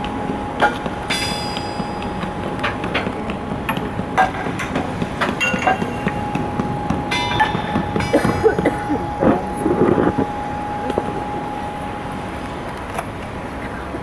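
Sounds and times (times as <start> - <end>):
high ringing squeal: 0.0 - 2.9, 5.4 - 13.6
metallic clanks and knocks: 0.0 - 10.3
steady railway hum: 0.0 - 14.0.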